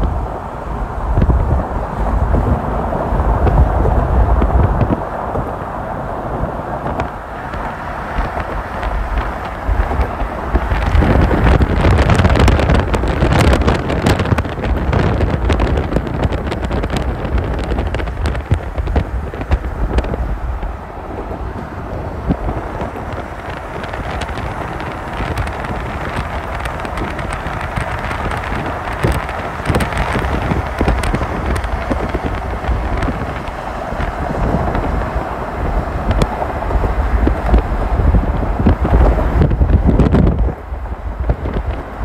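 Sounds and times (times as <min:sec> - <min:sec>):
moving vehicle rumble: 0:00.0 - 0:42.0
wind buffeting microphone: 0:00.0 - 0:42.0.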